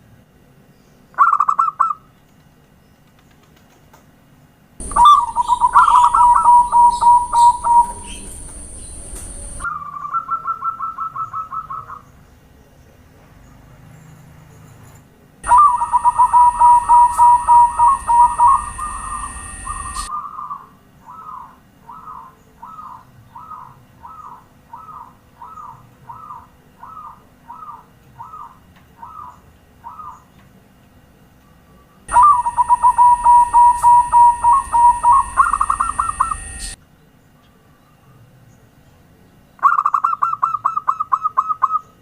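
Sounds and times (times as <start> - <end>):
steady high hiss: 4.8 - 9.7, 15.4 - 20.1, 32.1 - 36.8
dove cooing: 4.8 - 12.0, 15.4 - 30.2, 32.1 - 36.8.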